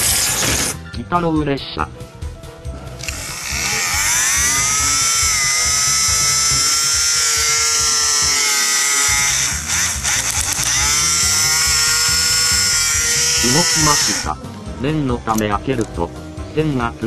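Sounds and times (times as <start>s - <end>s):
toy train motor whine: 3.0s - 14.3s.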